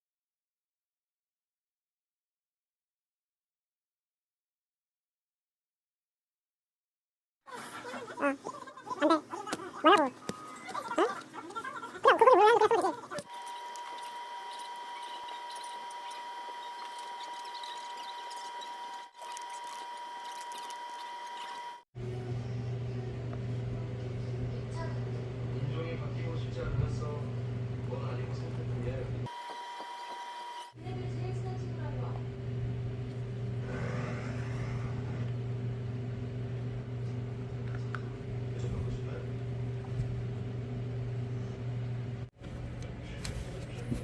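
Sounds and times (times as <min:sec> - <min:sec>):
dishwasher motor hum: 0:07.6 - 0:44.0.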